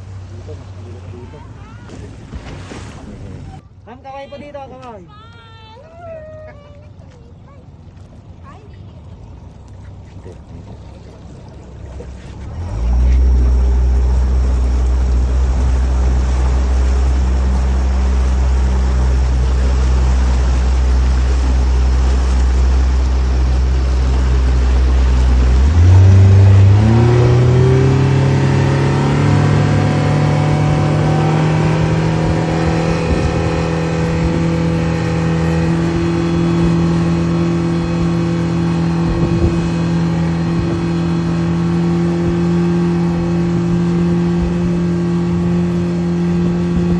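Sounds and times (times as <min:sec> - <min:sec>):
loud motor hum: 0:06.1 - 0:46.9.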